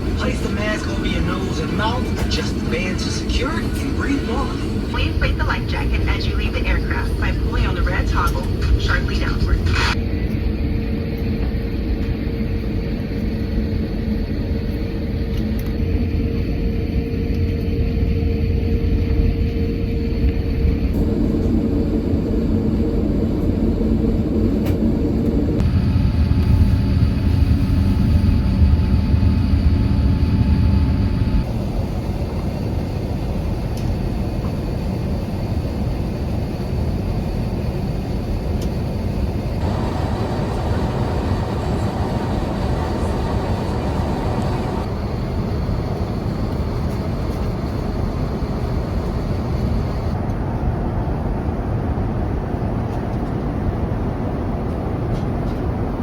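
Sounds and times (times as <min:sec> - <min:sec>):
airliner cabin engine rumble: 0:00.0 - 0:56.0
faint steady tones: 0:39.6 - 0:45.0.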